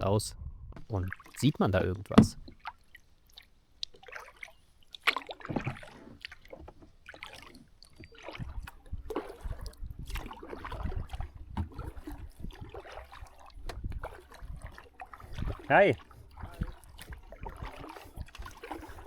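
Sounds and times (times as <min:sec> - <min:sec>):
low rumble: 0:00.0 - 0:00.9
water splashing around kayak: 0:00.8 - 0:19.0.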